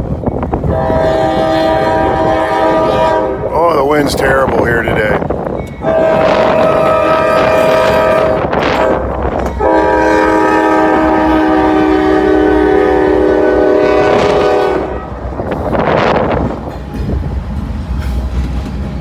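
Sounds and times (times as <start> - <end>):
wind buffeting microphone: 0.0 - 19.0
locomotive horn blasts: 0.6 - 3.6, 5.8 - 16.1.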